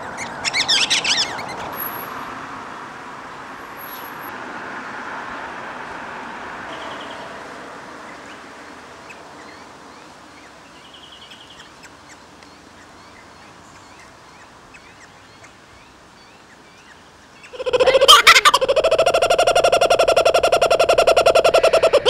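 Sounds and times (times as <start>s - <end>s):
faint bird chirps and trill: 0.0s - 2.1s, 6.7s - 7.3s
steady outdoor hiss: 0.0s - 22.0s.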